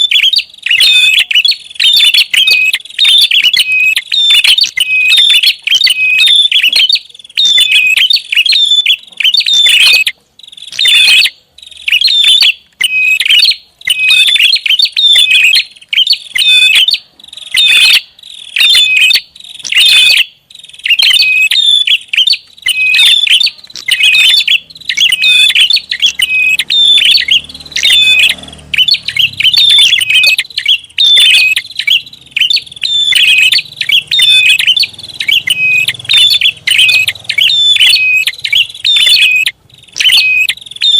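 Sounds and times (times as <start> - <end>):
bird chirping rapidly: 0.0 - 40.9.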